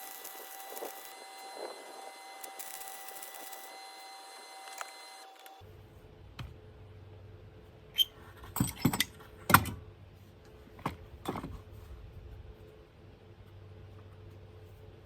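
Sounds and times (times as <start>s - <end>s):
tools and metal parts clanking: 8.4s - 9.8s.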